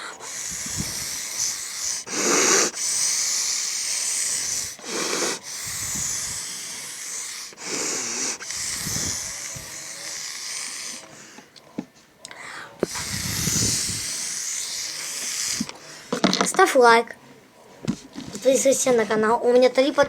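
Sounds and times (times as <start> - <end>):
airbrush spray hissing: 0.0 - 11.3, 12.8 - 16.2
person breathing: 0.0 - 11.6, 12.3 - 16.3.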